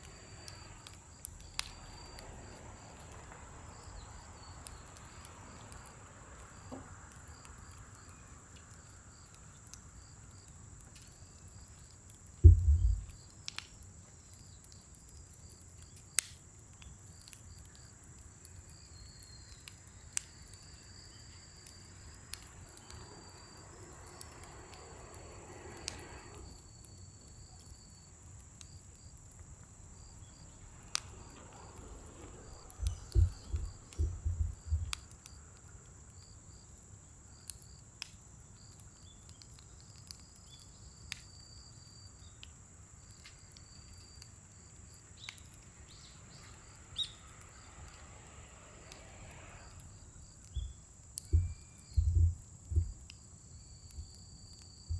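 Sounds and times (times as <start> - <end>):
fire popping: 0.0 - 54.9
insects chirping: 0.0 - 54.9
heavy low thumps: 12.4 - 13.2.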